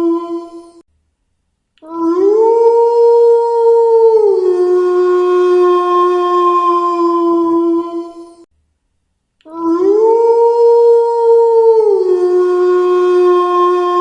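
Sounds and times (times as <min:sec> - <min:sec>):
wolf howling: 0:00.0 - 0:00.8, 0:01.9 - 0:08.4, 0:09.5 - 0:14.0.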